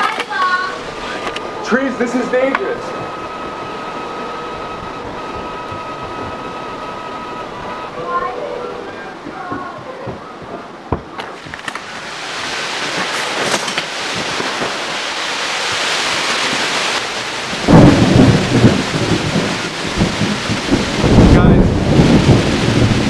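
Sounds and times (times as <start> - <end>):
heavy rain: 0.0 - 23.0
thunderclap rumbling: 0.0 - 23.0
wind: 0.0 - 23.0.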